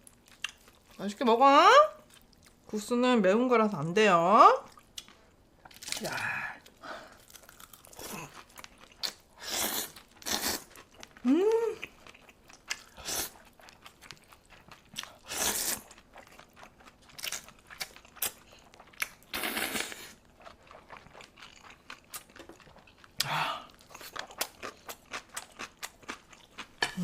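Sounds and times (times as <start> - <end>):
chewing and crunching food: 0.0 - 1.0, 2.0 - 2.7, 4.6 - 27.0.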